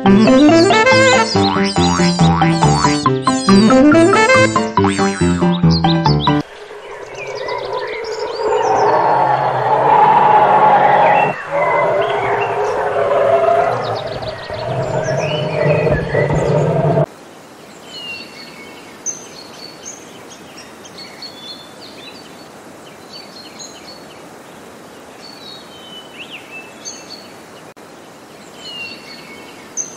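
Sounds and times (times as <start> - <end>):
small birds chirping: 5.0 - 17.1
elephant calling loudly: 6.5 - 17.1
steady background hiss: 17.1 - 29.9.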